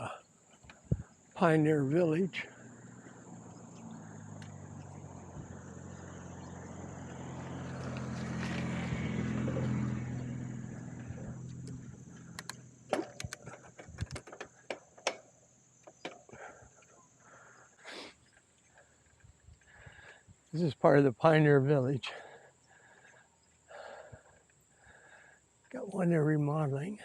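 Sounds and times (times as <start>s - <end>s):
car passing: 1.1s - 13.8s
sharp clicks and knocks: 11.6s - 16.4s.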